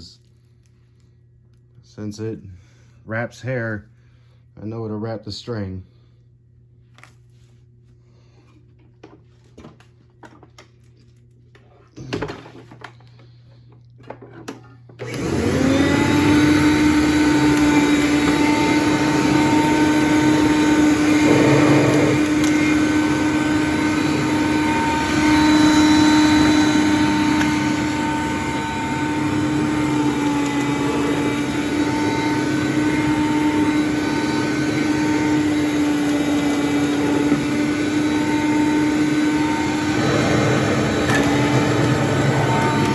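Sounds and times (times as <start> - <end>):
vacuum cleaner motor whining: 14.9 - 42.9.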